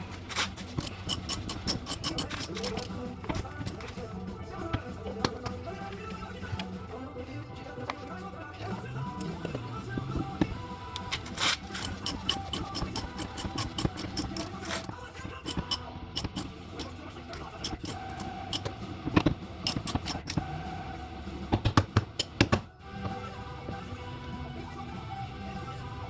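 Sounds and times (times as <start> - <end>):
hand tools clinking on metal: 0.0 - 6.8, 7.8 - 20.5.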